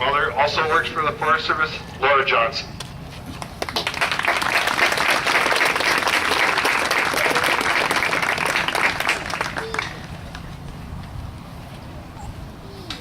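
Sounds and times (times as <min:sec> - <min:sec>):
crowd applauding: 0:03.4 - 0:10.4.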